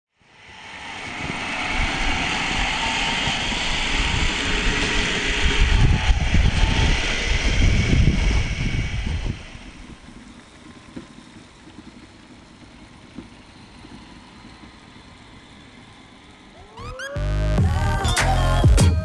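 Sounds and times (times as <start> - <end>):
wind on microphone: 1.1 - 10.0.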